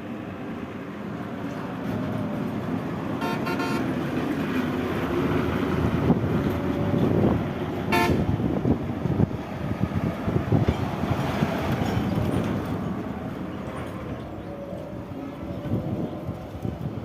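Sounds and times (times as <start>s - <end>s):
road traffic noise: 0.0s - 17.0s
car horn toots: 3.2s - 3.9s, 7.9s - 8.3s.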